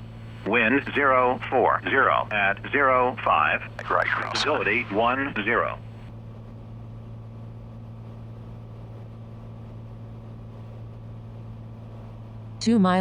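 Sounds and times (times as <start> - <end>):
aircraft engine and propeller droning: 0.0 - 12.9.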